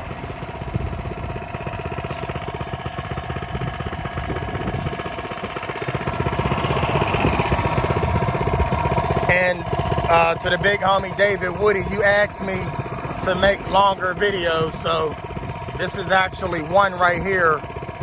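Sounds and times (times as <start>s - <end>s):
small engine putter: 0.0s - 18.0s.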